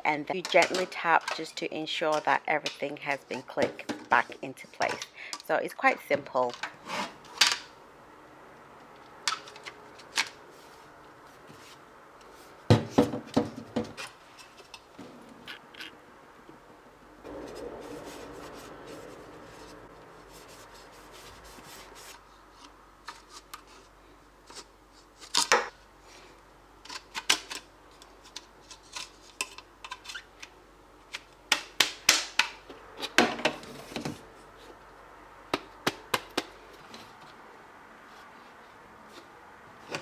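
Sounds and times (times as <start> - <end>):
soft plastic rubbing: 17.3 - 25.4.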